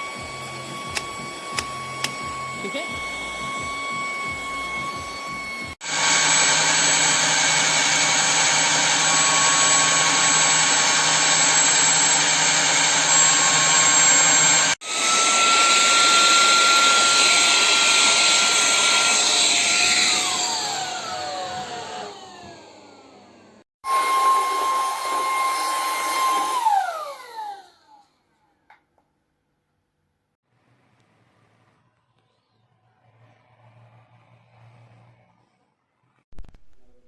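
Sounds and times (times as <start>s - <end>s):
vacuum cleaner motor whine: 0.0s - 28.1s.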